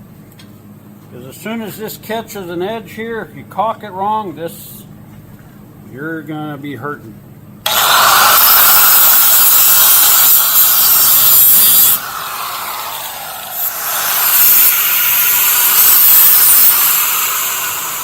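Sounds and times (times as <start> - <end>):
grinder cutting sheet steel: 7.7 - 18.0.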